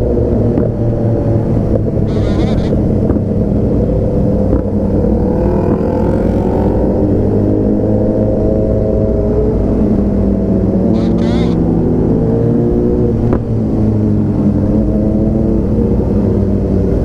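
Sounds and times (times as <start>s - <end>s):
motorcycle engine running: 0.0s - 8.0s, 10.4s - 13.6s.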